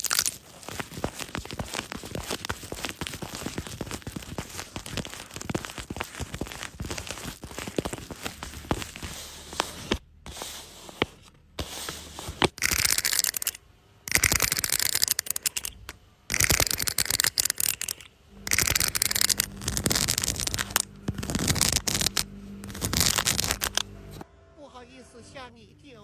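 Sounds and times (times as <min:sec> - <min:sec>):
hands stroking fur: 0:00.0 - 0:12.6.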